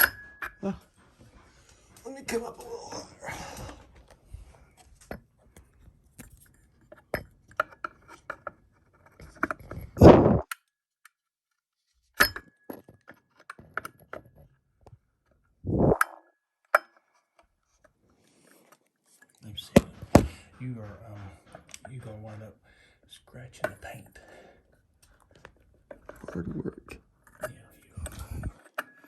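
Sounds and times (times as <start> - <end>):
heavy thumps: 19.7 - 21.7.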